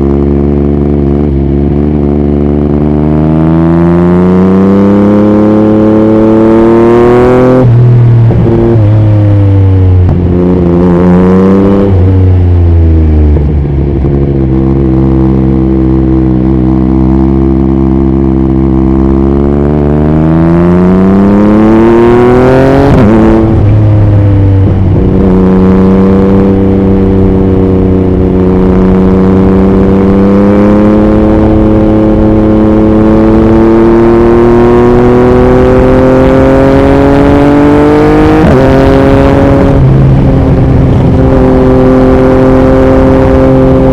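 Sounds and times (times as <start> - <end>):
motorcycle engine revving: 0.0 - 43.9
wind noise on microphone: 7.0 - 16.5, 21.0 - 33.7, 34.3 - 43.9.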